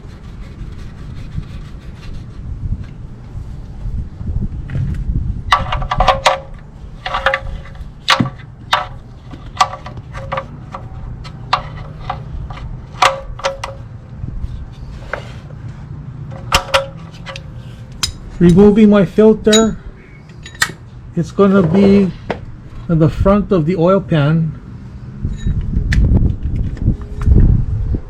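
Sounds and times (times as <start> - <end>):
hand tools clinking: 19.4 - 20.9.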